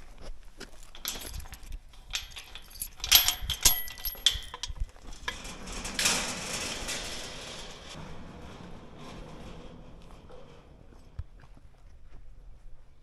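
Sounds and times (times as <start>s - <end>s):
sharp metallic clinks and rattles: 0.9s - 10.7s.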